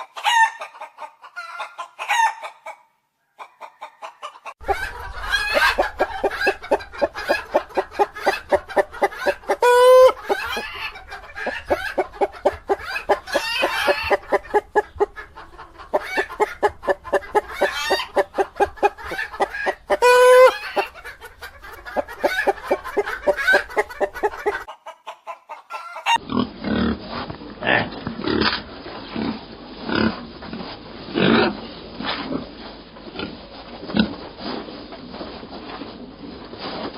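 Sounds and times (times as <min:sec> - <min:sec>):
chicken squawk: 0:00.0 - 0:26.2
chickens clucking: 0:00.0 - 0:26.3.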